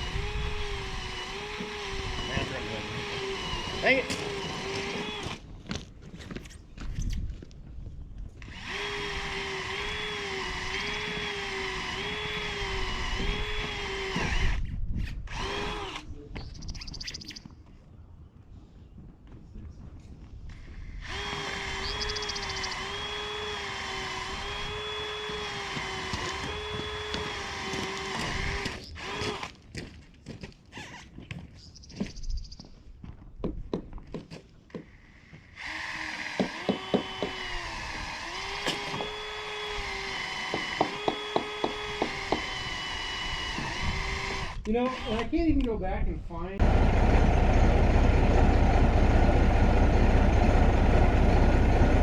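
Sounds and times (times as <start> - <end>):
power drill driving screws into metal: 0.0 - 5.4, 8.4 - 14.6, 15.3 - 16.1, 20.5 - 29.6, 34.8 - 45.4.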